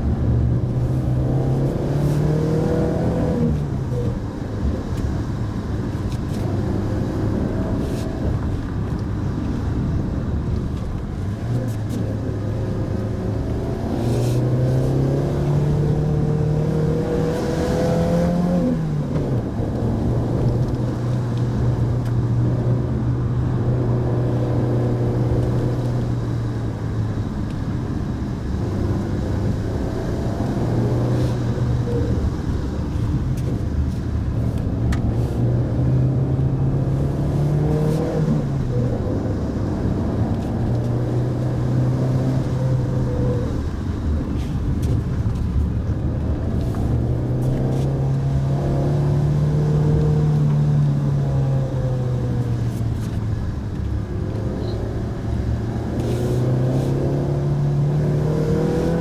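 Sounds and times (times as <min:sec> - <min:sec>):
tyre and road noise: 0:00.0 - 0:59.0.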